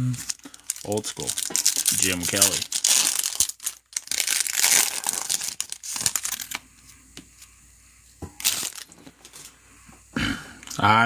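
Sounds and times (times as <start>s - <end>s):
wrapper crinkling and tearing: 0.2s - 6.6s, 8.4s - 9.0s.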